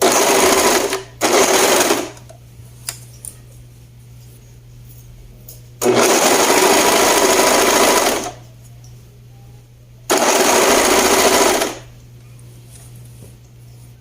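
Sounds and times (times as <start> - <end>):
sewing machine stitching: 0.0 - 2.2, 5.8 - 8.4, 10.1 - 11.8.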